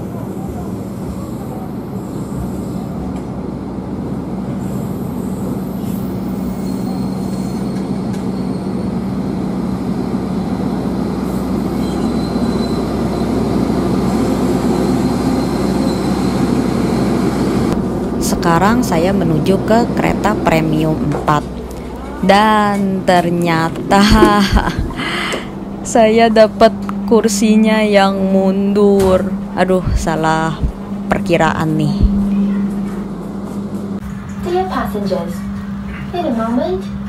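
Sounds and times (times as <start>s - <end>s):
train wheels rumbling on rails: 0.0s - 37.0s
faint high wheel squeal: 4.6s - 9.2s, 10.9s - 13.5s, 14.7s - 17.1s
constant low hum: 17.6s - 37.0s.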